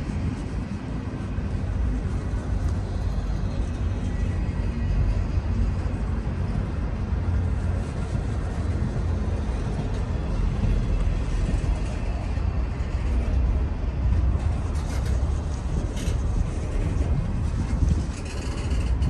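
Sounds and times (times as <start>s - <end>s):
freight train rumbling past: 0.0s - 19.0s.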